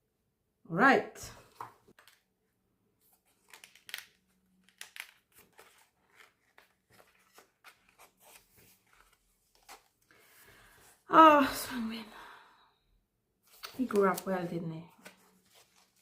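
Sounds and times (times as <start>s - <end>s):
paper packaging rustling: 3.0s - 10.2s, 13.5s - 16.0s.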